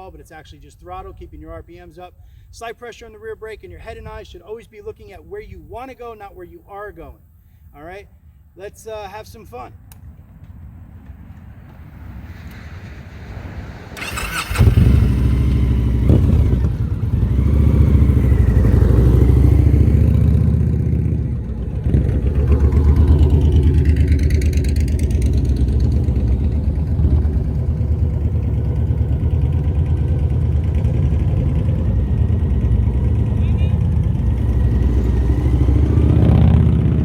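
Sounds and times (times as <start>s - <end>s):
motorcycle engine at low speed: 10.4s - 37.0s.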